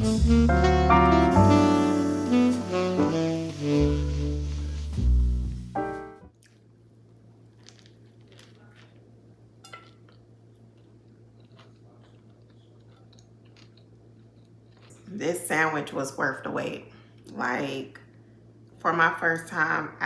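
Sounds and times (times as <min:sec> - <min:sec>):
background music: 0:00.0 - 0:06.3
person chewing sandwich: 0:06.3 - 0:15.2.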